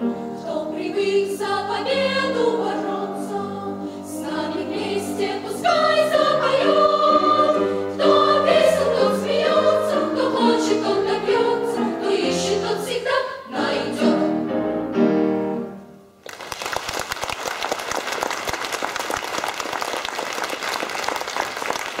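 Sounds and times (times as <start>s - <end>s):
audience applause: 16.2s - 22.0s.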